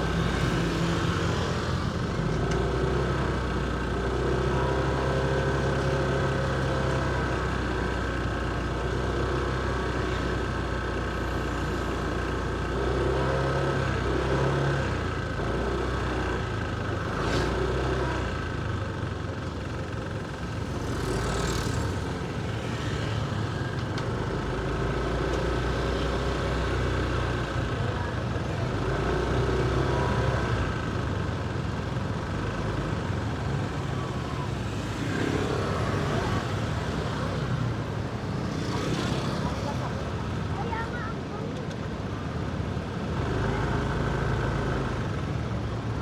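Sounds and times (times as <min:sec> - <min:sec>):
vehicles passing close by: 0:00.0 - 0:46.0.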